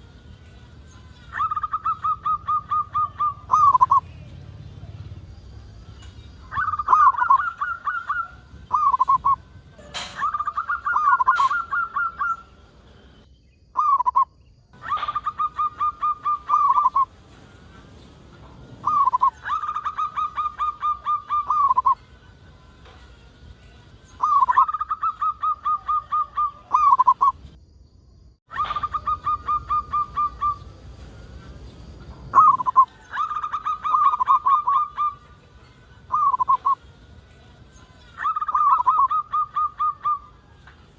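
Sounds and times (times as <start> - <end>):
dove cooing: 1.3 - 4.0, 6.4 - 12.5, 14.8 - 17.2, 18.8 - 22.0, 24.2 - 27.4, 28.5 - 30.8, 32.3 - 35.3, 36.1 - 36.8, 38.2 - 40.4.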